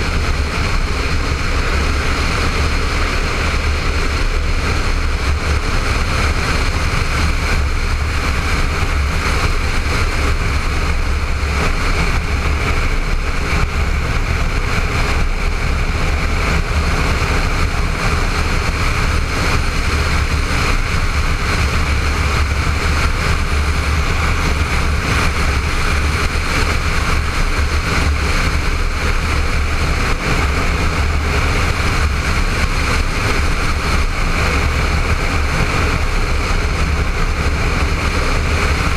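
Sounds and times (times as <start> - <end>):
motorcycle engine running: 0.0 - 38.9
wind rush: 0.0 - 38.9.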